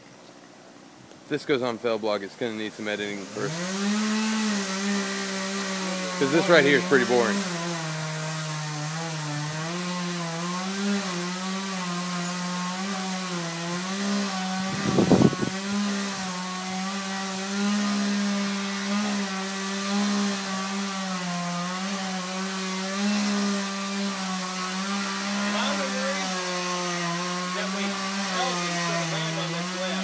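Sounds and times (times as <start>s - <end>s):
chainsaw cutting tree trunk: 2.5s - 30.0s.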